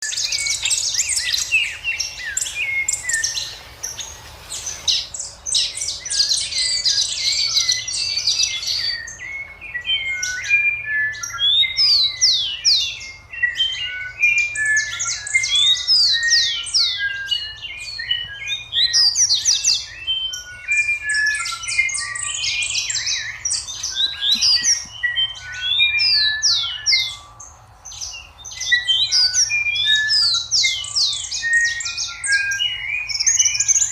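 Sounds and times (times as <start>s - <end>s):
chicks peeping: 21.4s - 25.4s.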